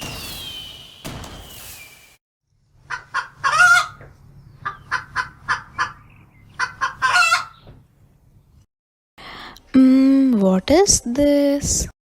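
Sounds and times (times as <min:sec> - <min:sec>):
chicken clucking: 0:02.9 - 0:07.6.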